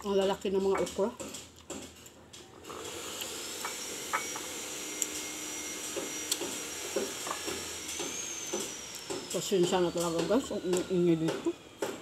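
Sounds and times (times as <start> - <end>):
power tool whine: 2.6 - 12.0.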